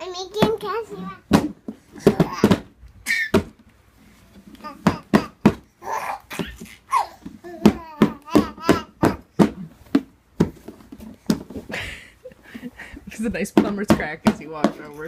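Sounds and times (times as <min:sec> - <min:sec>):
knocks and bumps: 0:00.3 - 0:03.7, 0:06.3 - 0:12.0, 0:12.9 - 0:15.0
child babbling: 0:04.6 - 0:09.3.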